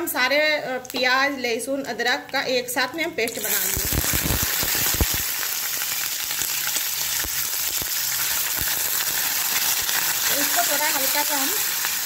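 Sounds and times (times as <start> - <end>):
paste sizzling in hot oil: 3.3 - 12.0.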